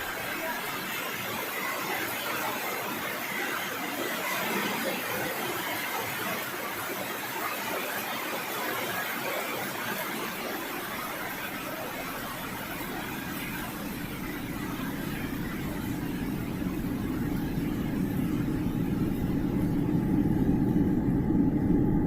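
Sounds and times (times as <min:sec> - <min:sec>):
waterfall rushing: 0:09.7 - 0:19.6.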